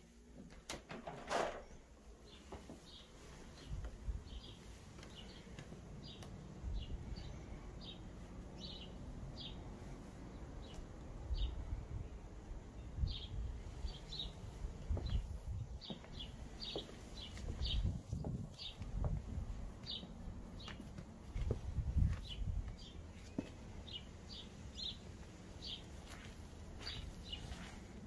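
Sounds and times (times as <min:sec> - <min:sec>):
low gusting rumble: 0:17.5 - 0:20.4.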